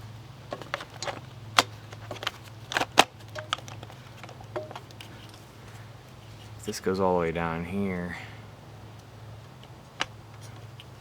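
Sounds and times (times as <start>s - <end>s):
steady low hum: 0.0s - 11.0s
motorcycle parts clicking and knocking: 0.5s - 5.4s.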